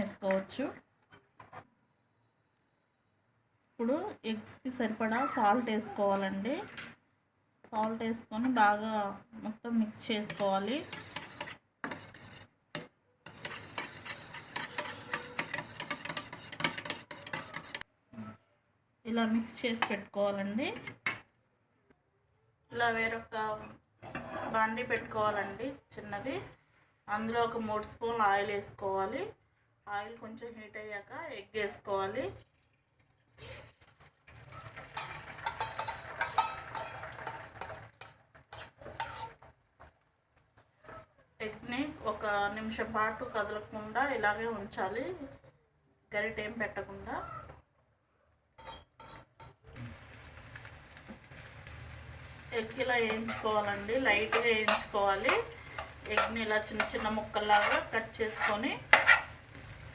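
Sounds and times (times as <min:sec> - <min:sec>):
eggs sizzling in hot oil: 0:09.9 - 0:17.9, 0:32.4 - 0:40.7, 0:48.6 - 0:59.9
spoon clinking and scraping bowl: 0:10.2 - 0:17.8, 0:34.9 - 0:39.5, 0:48.6 - 0:49.5, 0:53.1 - 0:59.4
whisk clicking against a bowl: 0:13.3 - 0:17.8.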